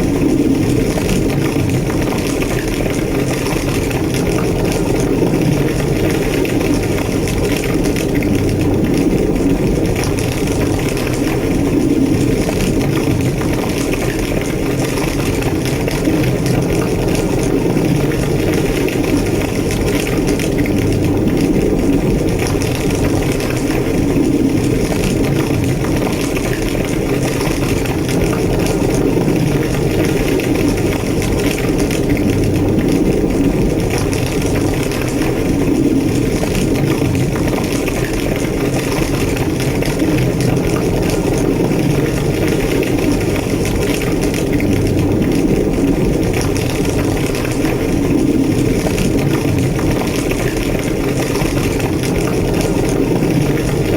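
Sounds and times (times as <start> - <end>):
fire roaring and crackling: 0.0 - 53.9.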